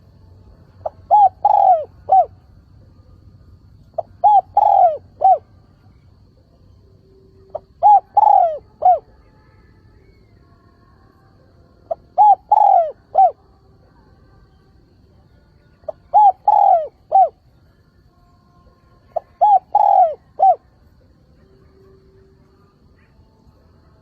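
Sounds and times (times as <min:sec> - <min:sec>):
dove cooing: 0:00.8 - 0:02.5, 0:03.9 - 0:06.6, 0:07.4 - 0:09.2, 0:11.9 - 0:13.4, 0:15.9 - 0:17.4, 0:19.0 - 0:20.8.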